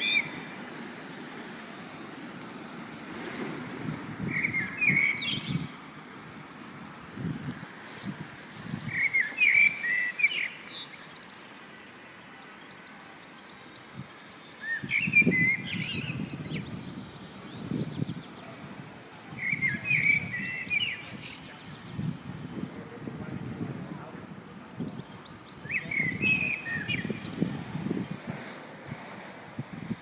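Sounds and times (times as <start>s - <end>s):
high bird chirps: 0.0s - 0.5s, 3.3s - 18.4s
songbird warbling: 0.0s - 0.6s, 3.3s - 8.2s, 8.8s - 18.4s.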